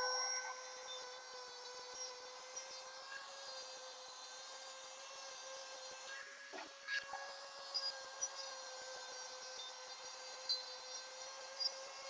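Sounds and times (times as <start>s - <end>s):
rotary tool whine: 0.0s - 6.4s.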